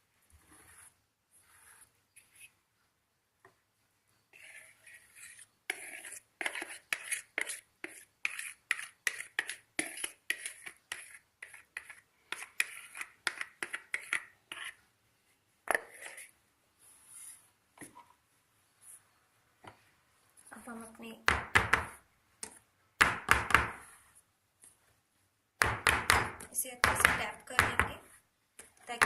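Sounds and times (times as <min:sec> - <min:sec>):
spatula scraping batter from bowl: 0:04.3 - 0:14.8, 0:15.7 - 0:18.1.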